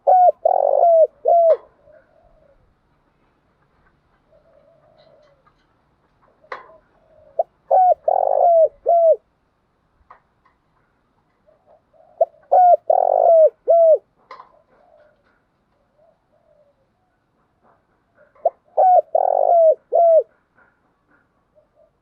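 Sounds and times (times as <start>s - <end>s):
dove cooing: 0.0s - 2.7s, 4.2s - 9.2s, 11.4s - 17.1s, 18.2s - 22.0s.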